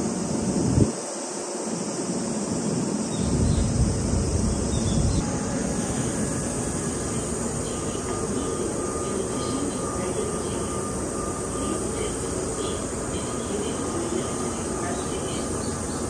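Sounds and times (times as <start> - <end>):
stopped train hiss and hum: 0.0 - 16.0
heavy low rumble: 3.2 - 8.9.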